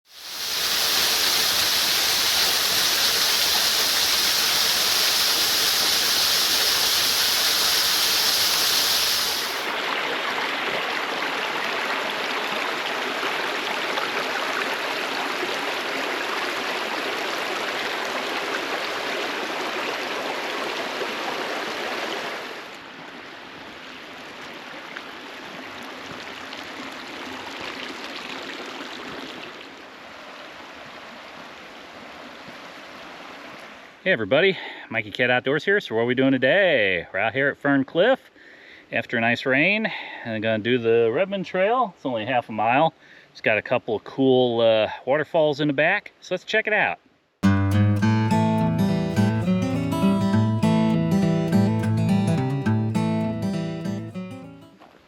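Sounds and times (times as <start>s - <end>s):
waterfall running: 0.1s - 22.4s, 48.2s - 54.5s.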